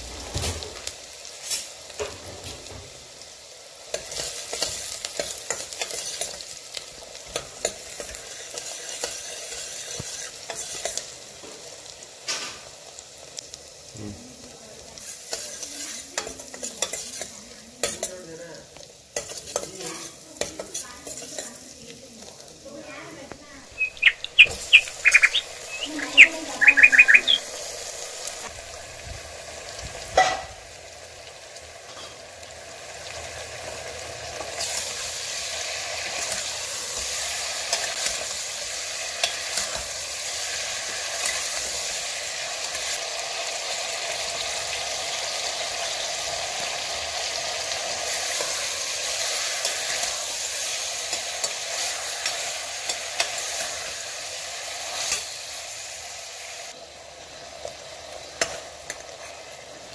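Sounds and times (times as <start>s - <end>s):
chicken sizzling in hot oil: 0.0s - 59.9s.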